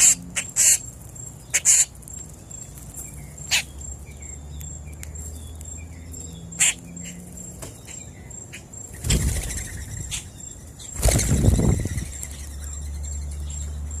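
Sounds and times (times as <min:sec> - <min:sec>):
wings flapping: 0:09.0 - 0:09.9, 0:11.0 - 0:12.2.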